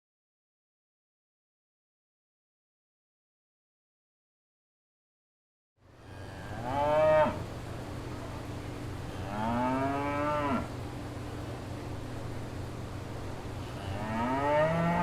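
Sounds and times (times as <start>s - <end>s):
steady low hum: 5.8s - 15.0s
cow mooing: 6.2s - 7.4s, 9.1s - 10.7s, 13.8s - 15.0s.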